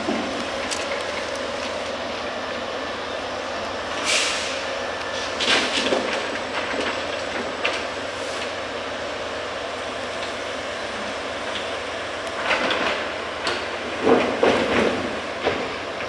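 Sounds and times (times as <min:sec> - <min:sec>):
wheels rumbling on rail: 0:00.0 - 0:16.0
sharp train clanks: 0:12.4 - 0:16.0.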